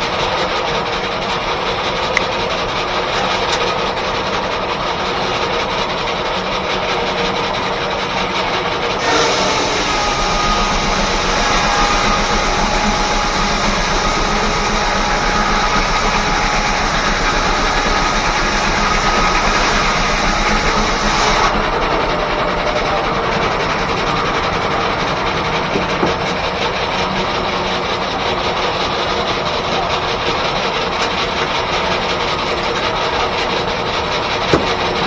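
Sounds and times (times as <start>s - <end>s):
sawmill mechanical din: 0.0s - 35.0s
faint mechanical whine: 9.0s - 27.7s.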